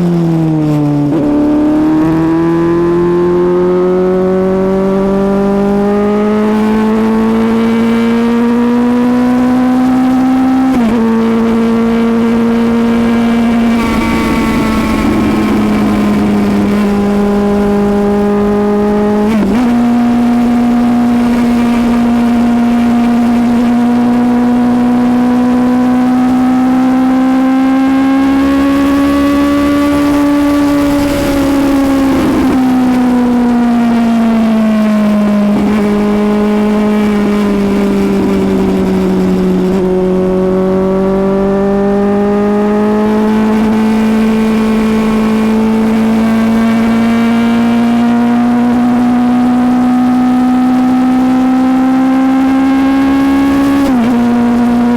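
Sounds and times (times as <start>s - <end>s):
motorcycle engine at road speed: 0.0s - 54.9s
wind rushing: 11.0s - 24.0s.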